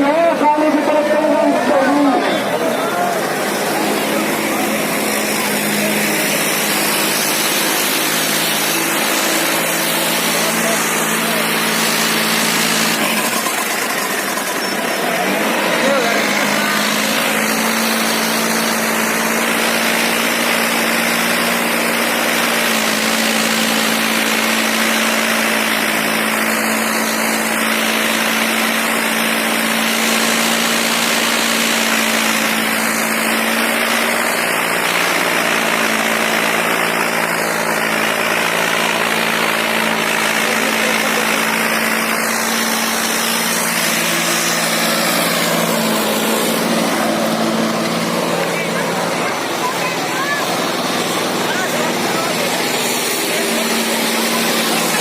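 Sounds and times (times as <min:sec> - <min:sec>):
loud dense noise: 0:00.0 - 0:55.0
tractor diesel engine running: 0:00.0 - 0:55.0.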